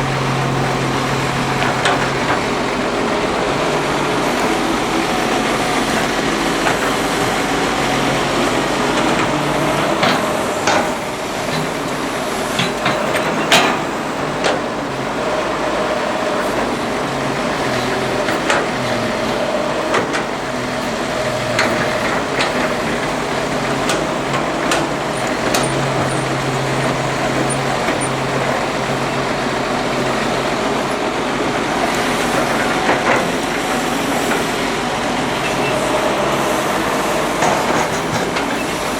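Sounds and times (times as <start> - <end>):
excavator diesel engine running: 0.0 - 38.9
sharp metal knocks and clanks: 8.9 - 14.7.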